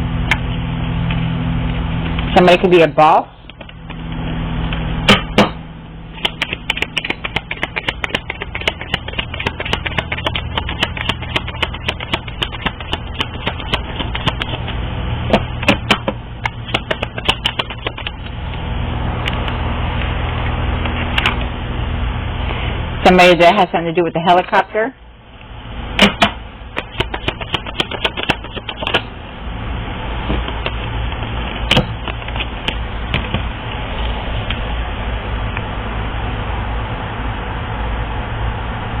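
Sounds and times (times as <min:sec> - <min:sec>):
steady low hum: 0:00.0 - 0:39.0
quick clicks and taps: 0:06.2 - 0:14.7, 0:15.3 - 0:18.3.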